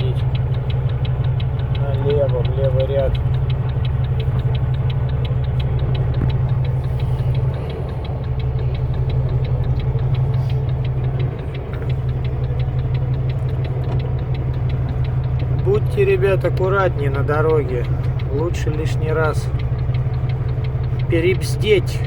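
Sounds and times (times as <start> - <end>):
truck diesel engine running: 0.0 - 22.0
turn signal ticking: 0.0 - 22.0.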